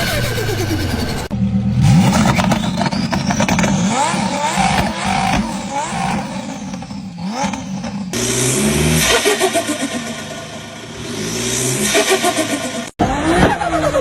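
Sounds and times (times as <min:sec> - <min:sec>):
car engines revving: 0:00.0 - 0:14.0
loud engine with stepping pitch: 0:00.0 - 0:14.0.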